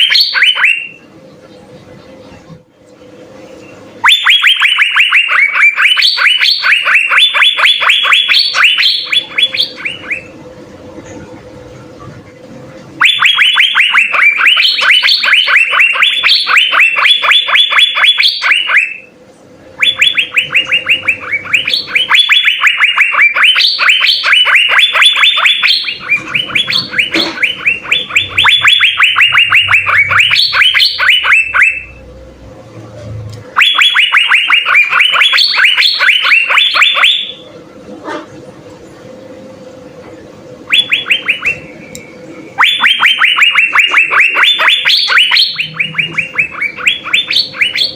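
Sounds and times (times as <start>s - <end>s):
bird singing rapid notes: 3.6s - 10.4s, 13.0s - 19.1s, 19.8s - 32.0s, 33.6s - 37.4s, 40.7s - 47.9s.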